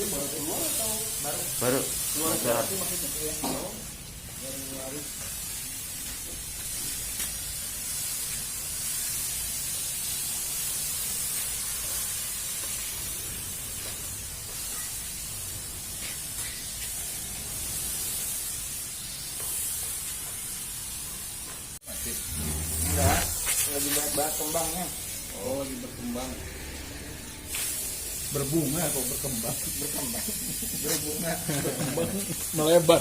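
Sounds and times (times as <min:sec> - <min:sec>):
fogging machine hissing: 0:00.0 - 0:33.0
low engine rumble: 0:22.0 - 0:23.5.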